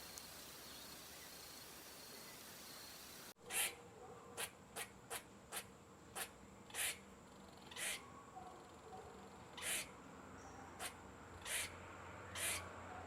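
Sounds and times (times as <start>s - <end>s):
cat hissing: 9.6s - 9.9s, 12.4s - 12.6s.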